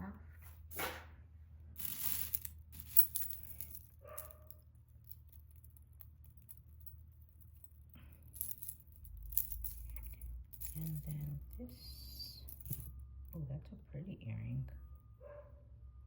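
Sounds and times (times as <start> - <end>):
jewelry clicking and rustling: 1.7 - 13.2.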